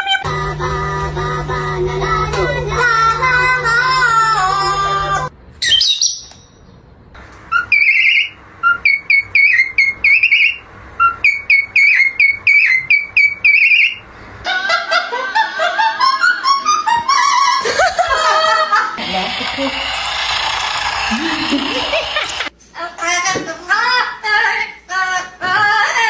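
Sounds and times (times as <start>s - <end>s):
parrot whistling: 7.5s - 14.0s.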